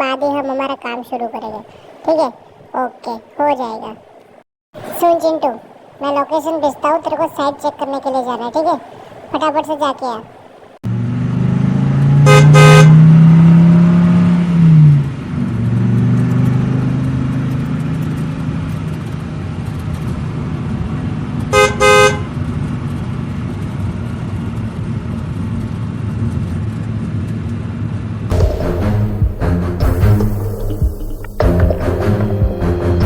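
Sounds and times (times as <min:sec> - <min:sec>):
horn tooting: 0:12.2 - 0:13.1, 0:21.5 - 0:22.3.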